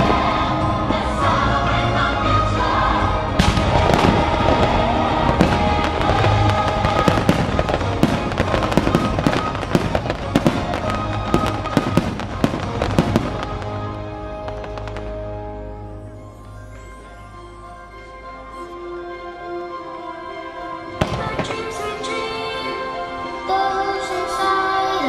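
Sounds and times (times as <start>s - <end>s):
fireworks bangs and crackles: 0.0s - 0.8s, 3.3s - 15.4s, 21.0s - 22.2s
orchestral music: 0.0s - 25.0s.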